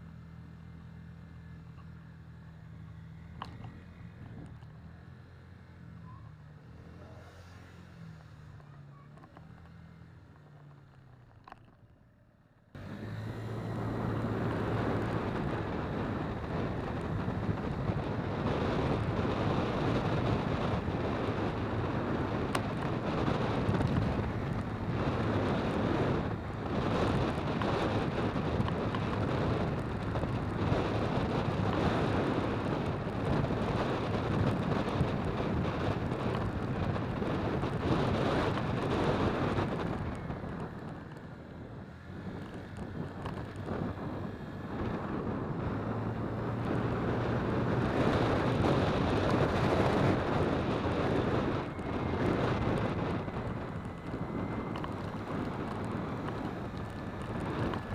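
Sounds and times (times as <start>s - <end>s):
jet airliner engines roaring overhead: 48.6s - 57.9s.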